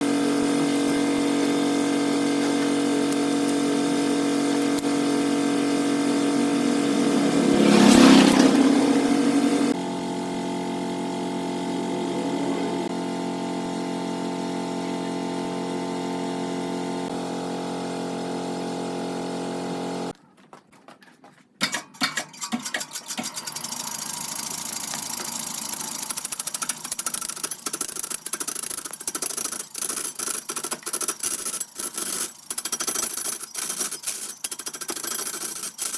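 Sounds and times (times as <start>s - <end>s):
machine drone with pitched hum: 0.0s - 14.6s.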